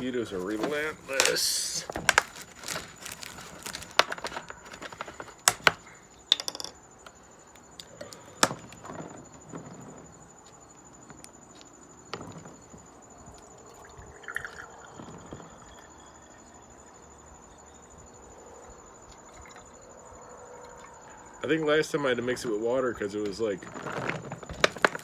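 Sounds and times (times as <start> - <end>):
insect trill: 0.0 - 25.0
jug and cup clinking: 14.0 - 16.1.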